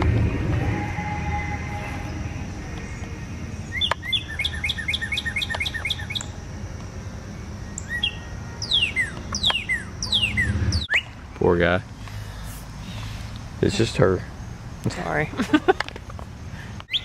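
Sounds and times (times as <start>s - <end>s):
cardinal whistled song: 0.3s - 6.4s, 7.3s - 11.2s
bird chirp: 0.7s - 13.2s
downslurred bird whistles: 3.7s - 6.3s, 7.8s - 11.1s.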